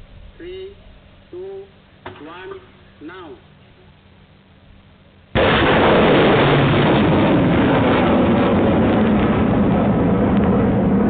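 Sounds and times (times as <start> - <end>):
rocket motor roaring: 5.4 - 11.0.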